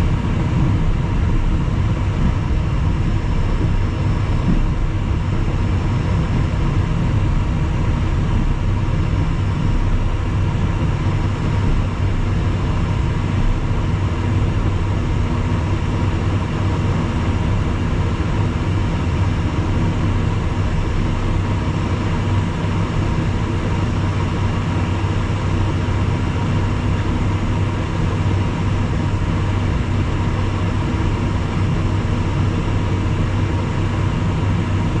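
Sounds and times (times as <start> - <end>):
jet engines droning: 0.0 - 35.0.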